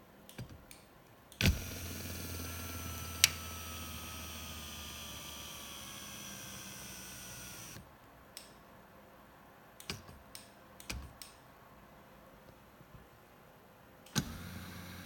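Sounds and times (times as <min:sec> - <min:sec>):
electric seat motor whining: 0:01.4 - 0:07.8, 0:14.2 - 0:15.0.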